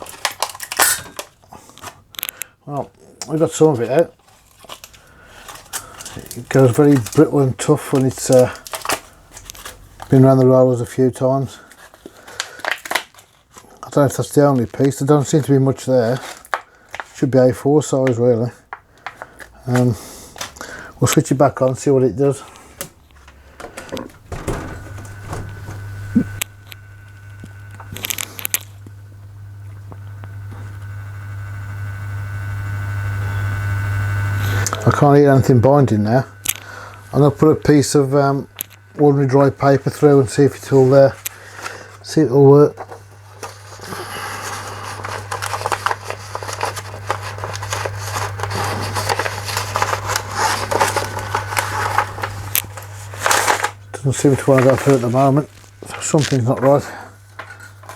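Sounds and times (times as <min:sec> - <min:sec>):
laminator motor humming: 0:00.0 - 0:57.9
crackling: 0:03.1 - 0:10.5, 0:18.1 - 0:42.1, 0:42.7 - 0:57.9
clicks: 0:22.8 - 0:29.0.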